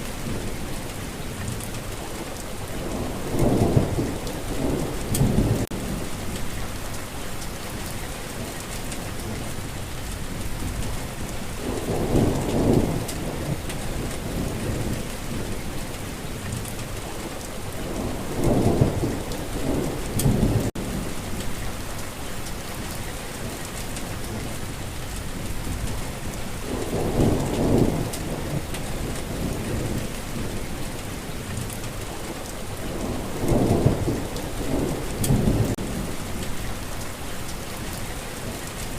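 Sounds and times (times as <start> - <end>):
steady rain: 0.0 - 38.9
rolling thunder: 2.6 - 6.8, 10.3 - 15.7, 17.6 - 22.0, 25.3 - 37.0.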